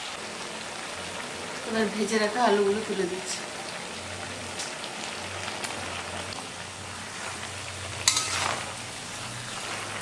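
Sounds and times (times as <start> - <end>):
vegetables sizzling in oil: 0.0 - 10.0
utensil clanking on pan: 8.0 - 8.7.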